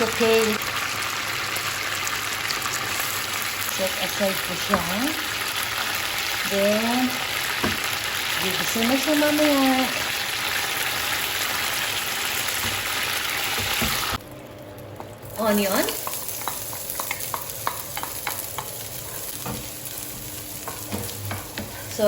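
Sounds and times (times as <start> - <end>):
oil sizzling in a frying pan: 0.0 - 14.2, 15.2 - 22.0
utensil clicking in a pan: 16.0 - 18.8.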